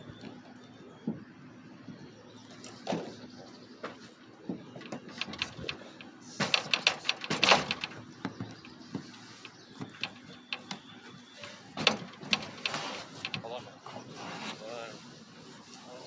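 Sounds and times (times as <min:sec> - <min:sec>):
equipment clicks and knocks: 0:03.9 - 0:13.6.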